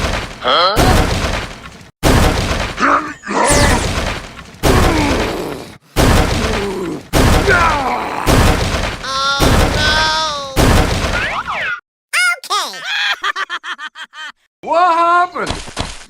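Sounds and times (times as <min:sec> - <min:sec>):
heavy crashes and smashes: 0:00.0 - 0:02.9, 0:03.5 - 0:05.4, 0:06.0 - 0:11.2.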